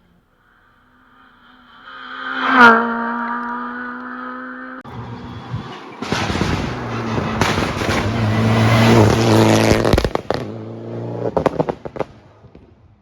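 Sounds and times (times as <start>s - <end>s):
rally car engine at full throttle: 0.0s - 12.2s
exhaust pops and crackles: 4.9s - 10.6s, 11.2s - 12.8s.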